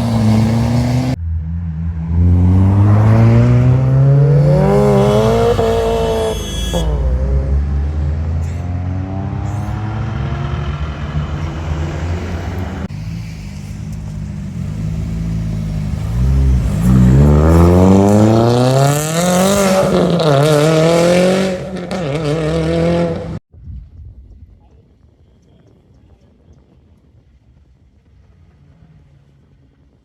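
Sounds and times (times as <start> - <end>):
car engine revving: 0.0 - 23.4.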